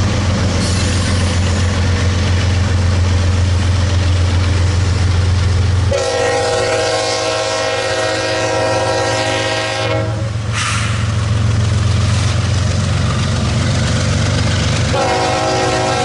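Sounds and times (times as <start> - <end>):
rail and wheel noise: 0.0 - 16.0
train rumble: 0.0 - 16.0
locomotive air horn chord: 5.9 - 10.7, 14.9 - 16.0.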